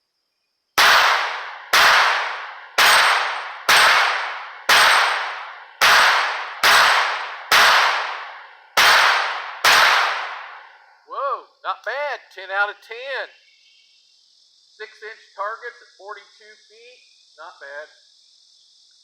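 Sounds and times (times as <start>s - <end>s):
steel target plates ringing: 0.8s - 10.7s
pistol shots: 0.8s - 10.8s.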